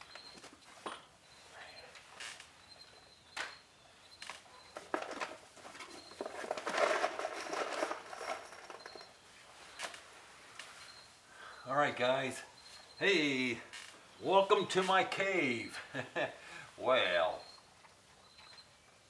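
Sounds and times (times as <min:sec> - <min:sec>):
rustling and scraping in wood: 0:04.2 - 0:11.1.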